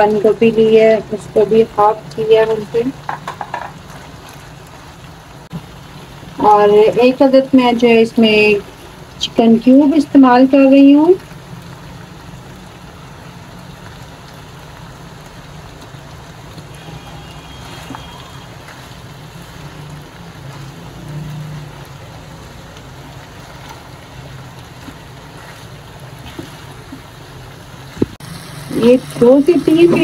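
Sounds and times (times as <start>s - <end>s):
chicken and vegetables sizzling: 0.0s - 30.0s
spatula turning food in pan: 15.8s - 30.0s.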